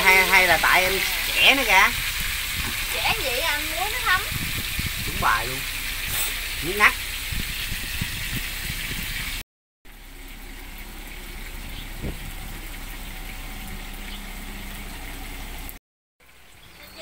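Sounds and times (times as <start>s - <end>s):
fish sizzling in a pan: 0.0s - 17.0s
faint hum: 9.9s - 15.8s.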